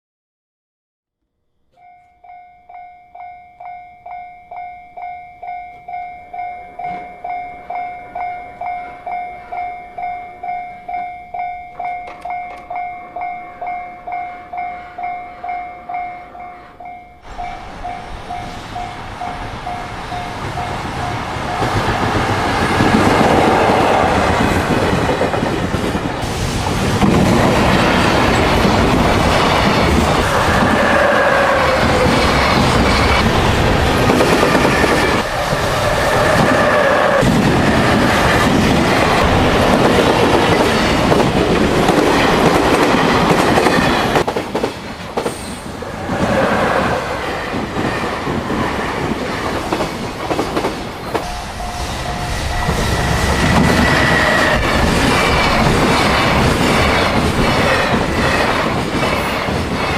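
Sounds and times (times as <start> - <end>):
freight train wheels clacking: 5.4 - 59.9
drawn-out whining tones: 51.1 - 58.6.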